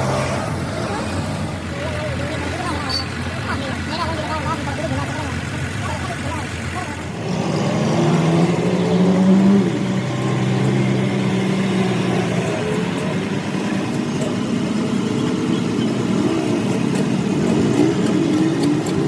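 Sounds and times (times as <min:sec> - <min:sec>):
faint voices: 0:00.0 - 0:09.8
engine humming: 0:00.0 - 0:19.0
workshop noise: 0:06.6 - 0:19.0.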